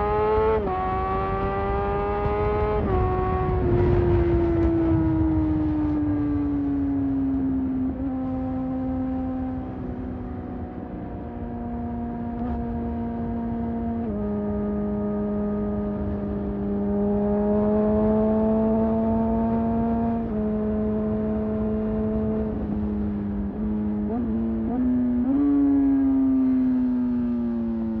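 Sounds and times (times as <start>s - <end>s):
wind noise: 0.0s - 11.4s.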